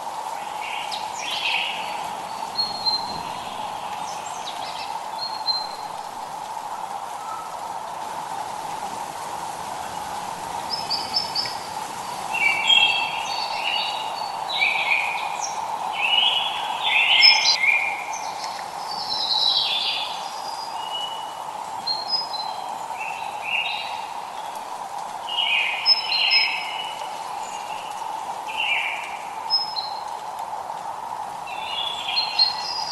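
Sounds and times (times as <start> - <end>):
light rain hiss: 0.0 - 32.9
songbirds chirping and singing: 0.4 - 6.1, 10.5 - 21.2.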